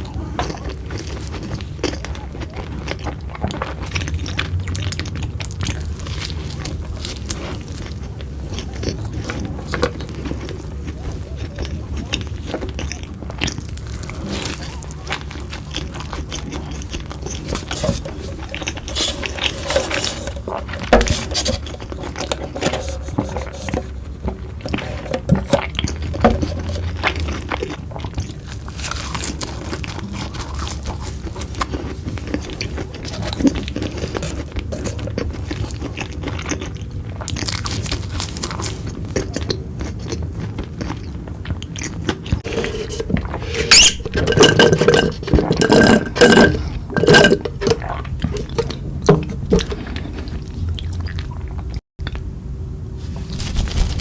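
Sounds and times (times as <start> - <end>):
chewing and crunching: 0.0 - 52.3
scraping: 16.4 - 27.8, 42.4 - 50.4.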